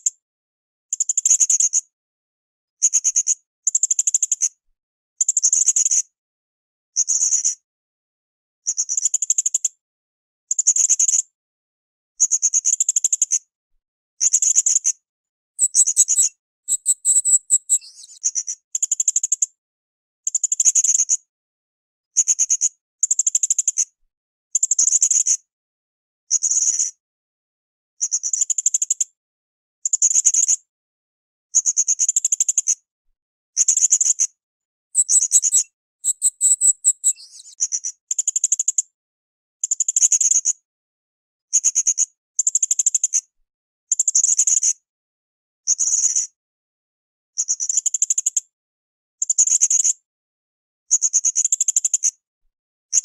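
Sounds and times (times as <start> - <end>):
parrot shrill chirping: 15.6 - 17.8, 35.0 - 37.2.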